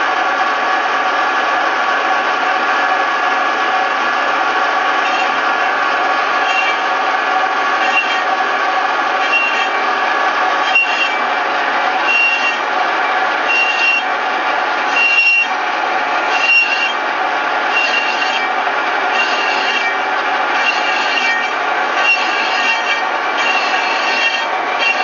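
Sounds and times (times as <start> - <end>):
metal lathe humming: 0.0 - 25.0
cutting tool squealing: 5.0 - 5.5, 6.2 - 8.5, 9.1 - 11.3, 12.0 - 14.2, 14.8 - 15.6, 16.2 - 17.0, 17.6 - 25.0.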